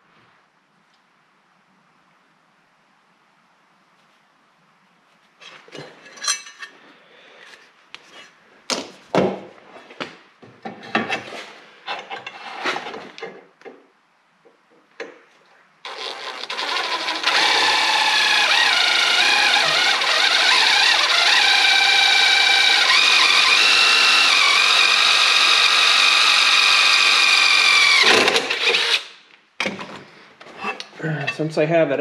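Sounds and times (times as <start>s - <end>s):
electric drill boring: 15.9s - 29.2s.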